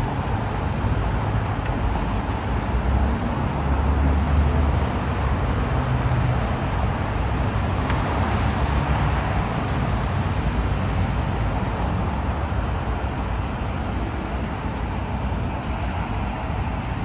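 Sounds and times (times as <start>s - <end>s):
diesel engine rumble: 0.0s - 17.0s.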